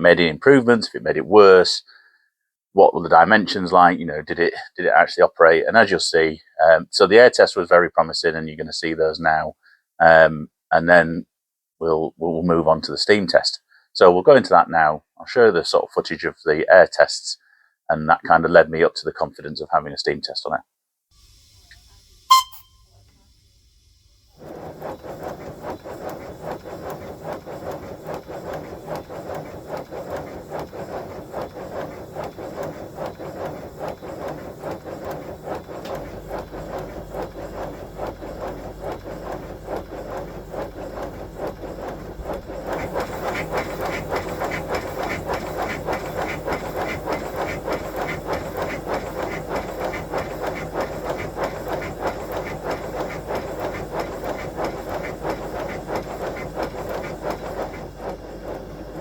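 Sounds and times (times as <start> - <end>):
model locomotive exhaust beats: 21.1 - 59.0.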